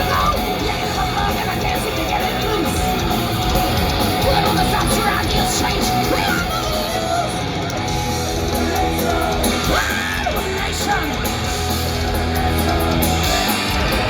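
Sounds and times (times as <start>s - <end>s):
heavy metal band playing live: 0.0s - 14.0s.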